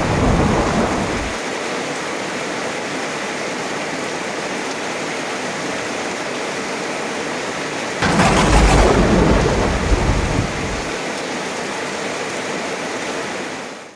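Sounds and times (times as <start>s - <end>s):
heavy rain falling: 0.0s - 1.4s, 8.0s - 11.0s
thunderclap rumbling: 0.0s - 1.4s, 8.0s - 11.0s.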